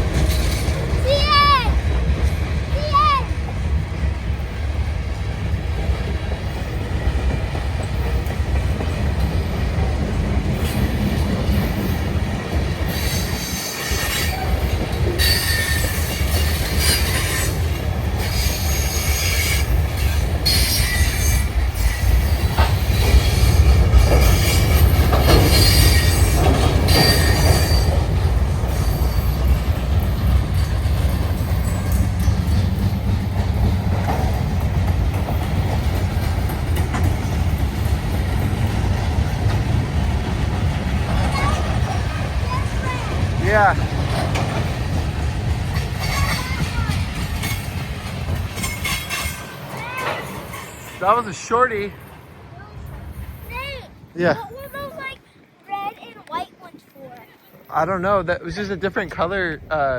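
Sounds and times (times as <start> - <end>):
train wheels rumbling on rail: 0.0 - 59.9
high-pitched wheel squeal: 15.2 - 17.6, 25.5 - 28.0.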